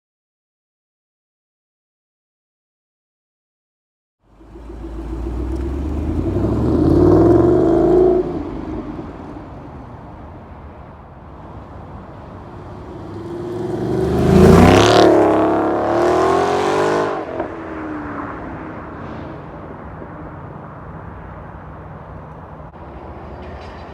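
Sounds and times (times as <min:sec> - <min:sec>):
engine idle rumble: 0:04.3 - 0:06.5
car engine revving: 0:04.3 - 0:10.0, 0:11.6 - 0:17.6.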